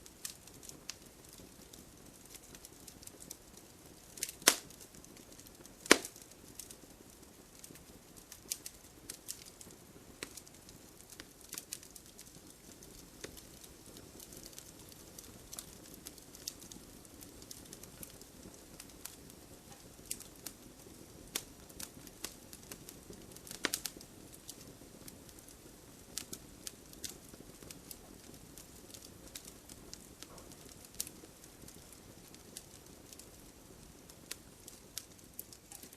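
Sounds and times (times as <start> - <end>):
hiss of flames: 0.0 - 35.9
wood fire crackling: 0.0 - 35.9
logs popping and snapping: 4.4 - 4.6, 5.9 - 6.2.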